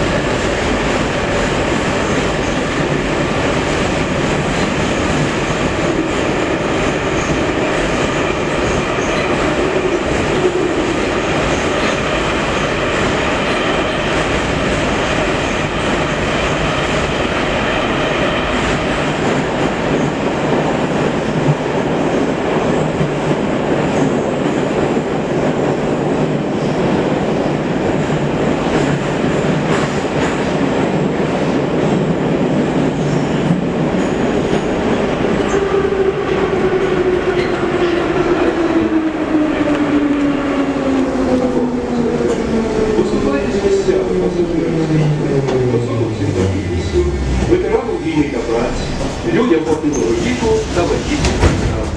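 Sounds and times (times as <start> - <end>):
train clickety-clack: 0.0 - 51.9
train wheels rumbling on rails: 0.0 - 51.9
train motor tones: 45.1 - 50.5.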